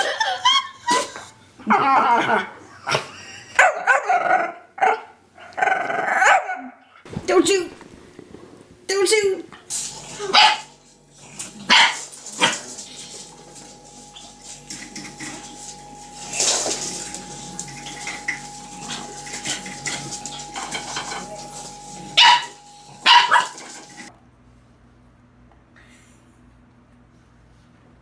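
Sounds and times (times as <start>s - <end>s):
dog barking: 0.0s - 6.8s, 10.2s - 10.7s, 11.7s - 12.6s, 22.2s - 23.7s
rustling noise: 7.1s - 10.0s.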